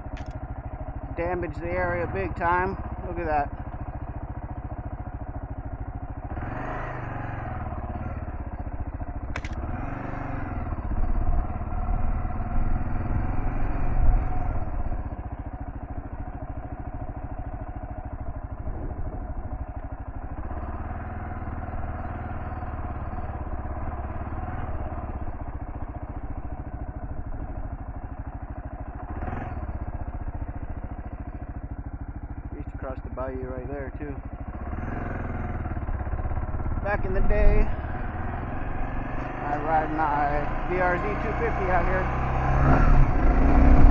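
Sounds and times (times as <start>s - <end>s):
sharp click: 0.0s - 0.4s, 9.3s - 9.7s
motorcycle engine running: 0.0s - 43.9s.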